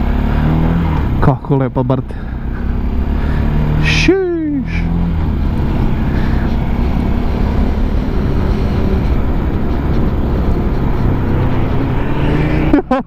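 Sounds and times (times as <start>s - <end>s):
wind and road noise: 0.0s - 13.0s
motorcycle engine running: 2.1s - 13.0s.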